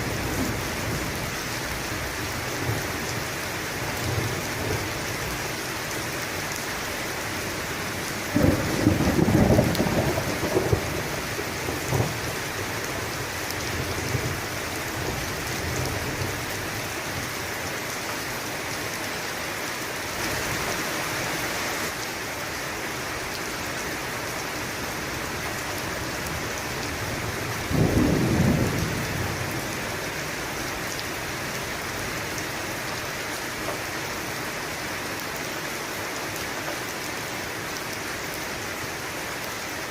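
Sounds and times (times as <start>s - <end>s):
steady rain: 0.0s - 39.9s
thunder rumbling: 8.2s - 12.6s, 26.9s - 29.9s.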